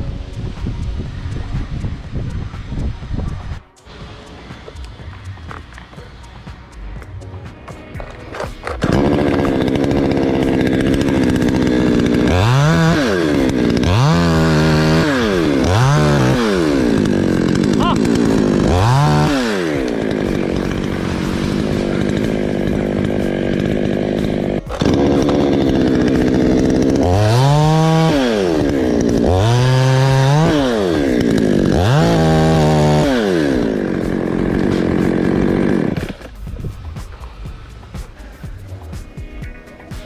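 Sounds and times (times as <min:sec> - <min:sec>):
chainsaw running hard: 0:08.0 - 0:38.6.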